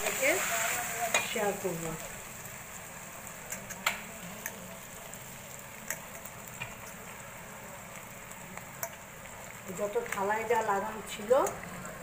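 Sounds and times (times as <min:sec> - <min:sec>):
food sizzling in pan: 0:00.0 - 0:12.0
steel spatula clicking pan: 0:08.6 - 0:09.0.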